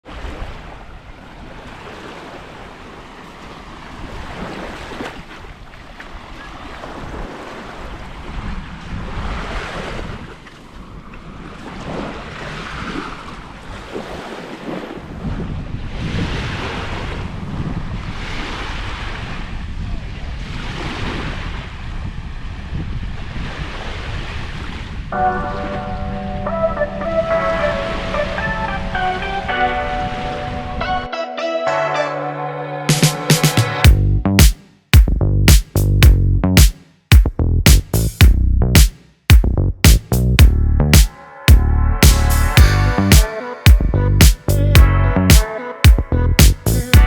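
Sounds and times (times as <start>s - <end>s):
small waves breaking on shore: 0.0s - 26.2s
wind buffeting microphone: 15.0s - 25.2s.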